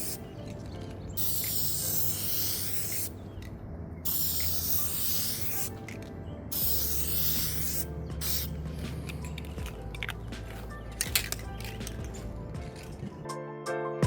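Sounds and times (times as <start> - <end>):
spray can hissing: 0.0 - 0.3, 1.2 - 3.2, 4.1 - 9.1
background music: 0.0 - 14.0.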